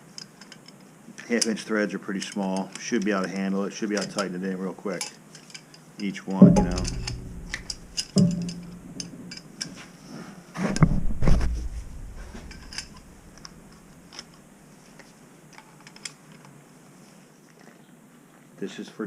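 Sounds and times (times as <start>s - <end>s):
metal clicking and clinking: 6.4s - 9.7s, 10.8s - 14.4s.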